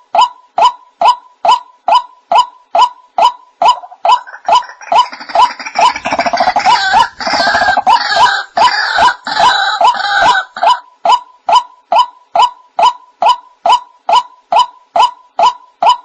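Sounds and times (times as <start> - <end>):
harsh rasping bird call: 3.8 - 10.6.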